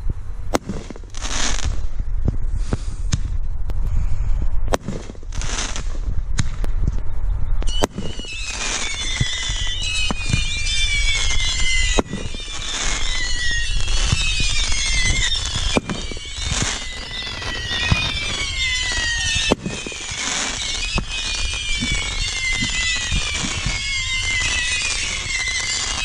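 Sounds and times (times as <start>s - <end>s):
firework bangs: 0.5s - 3.4s, 4.7s - 6.6s, 7.7s - 26.0s
firework crackling pops: 0.5s - 3.8s, 4.7s - 7.0s, 7.6s - 26.0s
falling firework whistles: 7.6s - 26.0s.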